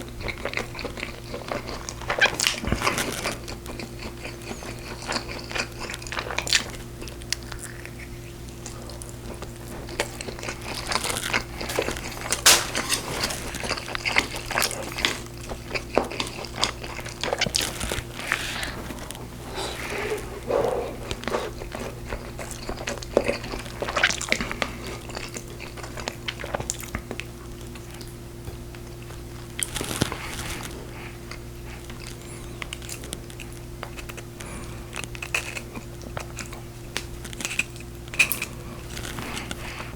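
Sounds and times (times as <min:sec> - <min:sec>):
person chewing and biting ribs: 0:00.0 - 0:39.9
steady low hum: 0:00.0 - 0:39.9
short clicks and crunches: 0:10.7 - 0:15.2.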